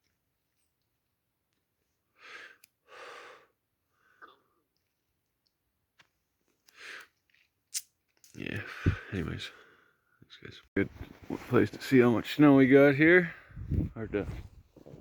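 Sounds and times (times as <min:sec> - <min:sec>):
person breathing: 0:02.1 - 0:04.6, 0:08.6 - 0:10.2, 0:13.3 - 0:14.0.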